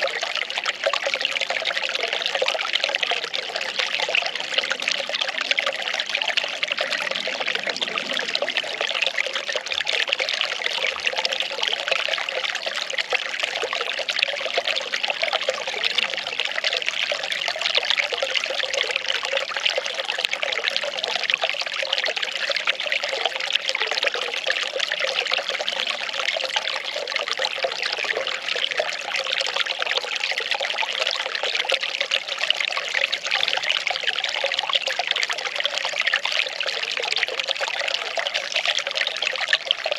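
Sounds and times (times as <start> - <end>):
water pouring and trickling: 0.0 - 39.9.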